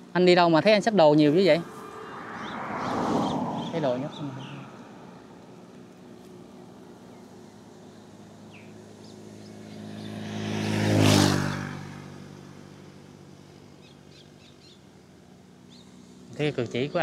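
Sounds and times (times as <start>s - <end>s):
vehicle passing by: 0.2s - 13.8s.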